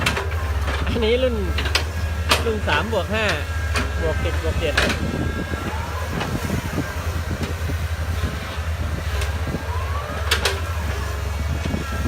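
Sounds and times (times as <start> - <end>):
diesel machinery engine running: 0.0 - 12.0
rising whine: 0.0 - 12.0.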